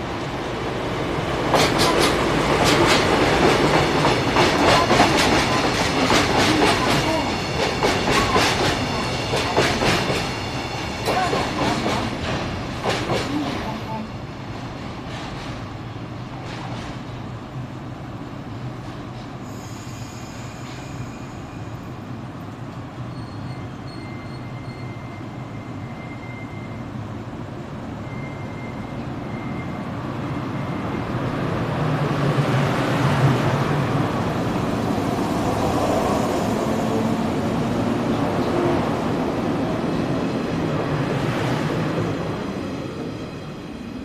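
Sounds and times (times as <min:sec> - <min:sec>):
train motor and wheel noise: 0:00.0 - 0:44.0
electric train low hum: 0:28.9 - 0:44.0.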